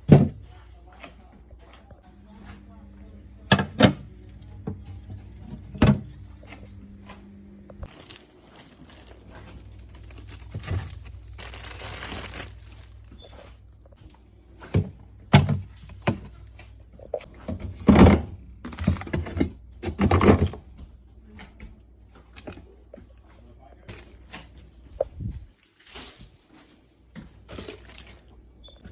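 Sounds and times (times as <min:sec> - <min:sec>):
containers thudding and knocking: 0:00.0 - 0:00.5, 0:07.8 - 0:13.3, 0:14.7 - 0:16.4, 0:17.1 - 0:20.8.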